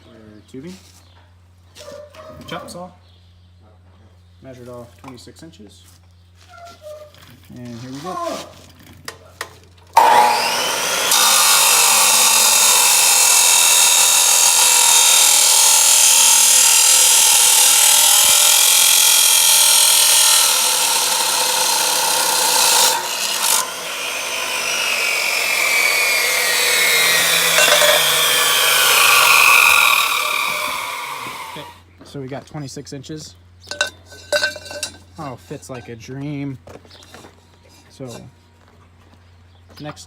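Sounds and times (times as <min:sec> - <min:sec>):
chop saw cutting metal tubing: 0:10.0 - 0:31.8, 0:33.7 - 0:35.0
saw blade winding down: 0:10.0 - 0:31.8.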